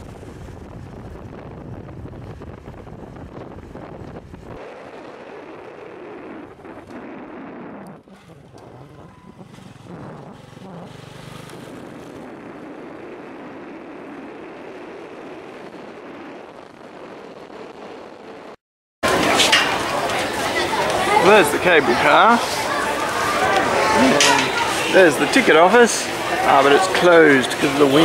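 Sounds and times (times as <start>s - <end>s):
wind buffeting microphone: 0.0s - 28.0s
small motorcycle engine running: 8.0s - 15.2s.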